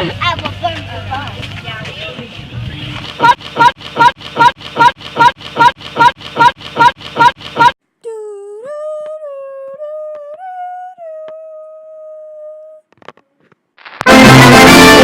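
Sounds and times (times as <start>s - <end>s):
high voice holding a note: 8.0s - 12.8s
loud music: 14.0s - 15.0s.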